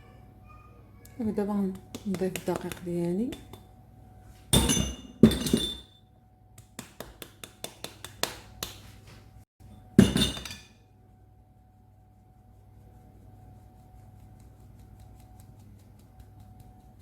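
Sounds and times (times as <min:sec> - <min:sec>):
glass clinking against bowl: 0:04.6 - 0:06.0, 0:10.0 - 0:10.8.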